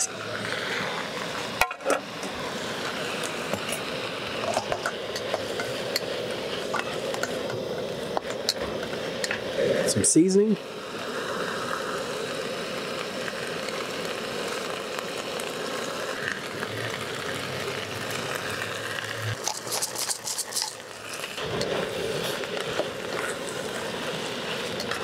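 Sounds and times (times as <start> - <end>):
rice sizzling in a wok: 0.0 - 25.0
spatula clicking and scraping: 19.4 - 20.9.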